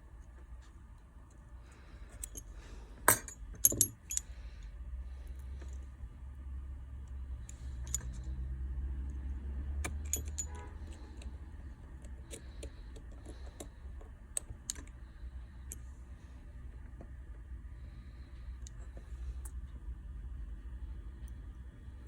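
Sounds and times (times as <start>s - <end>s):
steady low hum: 0.0s - 22.0s
small metal tools clicking: 2.2s - 2.5s, 3.1s - 4.3s, 7.4s - 8.4s, 9.8s - 11.3s.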